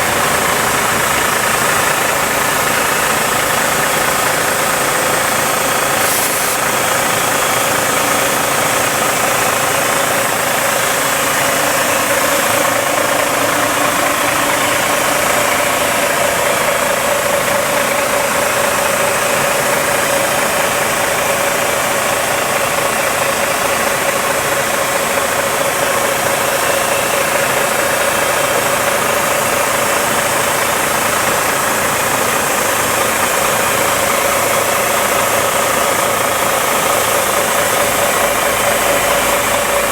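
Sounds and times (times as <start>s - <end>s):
truck idling: 0.0s - 39.9s
air hissing from tires: 2.5s - 16.4s.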